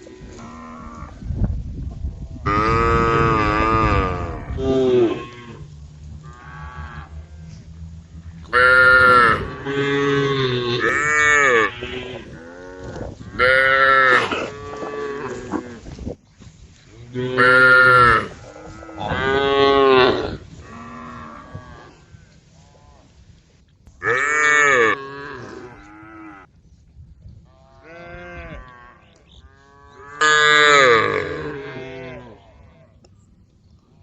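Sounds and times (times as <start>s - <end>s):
cows mooing: 2.4s - 15.8s, 17.1s - 23.0s, 24.0s - 26.5s, 27.6s - 32.9s.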